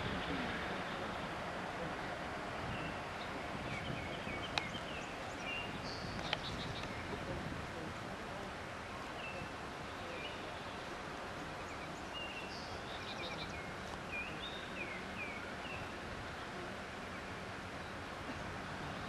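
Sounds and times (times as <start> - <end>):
steady background hiss: 0.0 - 19.0
birds chirping and whistling: 2.7 - 7.1.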